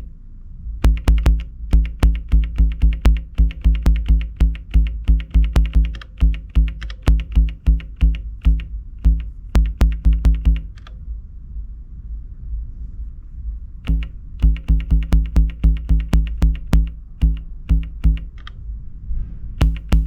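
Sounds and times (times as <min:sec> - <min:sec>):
low held bass tone: 0:00.0 - 0:11.7, 0:12.9 - 0:18.5, 0:19.6 - 0:20.0
electronic bass line: 0:00.8 - 0:10.8, 0:13.8 - 0:18.4, 0:19.6 - 0:20.0.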